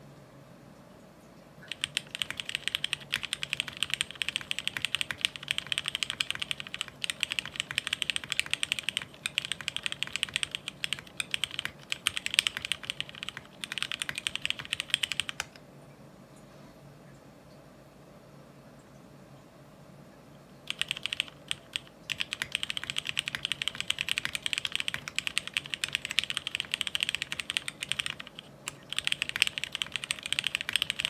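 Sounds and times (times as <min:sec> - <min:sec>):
mechanical keyboard typing: 0:01.6 - 0:15.6, 0:20.7 - 0:31.0.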